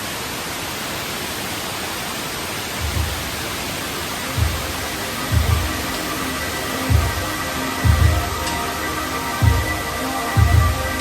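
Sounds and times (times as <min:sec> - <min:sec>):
waterfall roaring: 0:00.0 - 0:11.0
low thumps: 0:02.8 - 0:03.4, 0:04.4 - 0:05.9, 0:06.9 - 0:08.5.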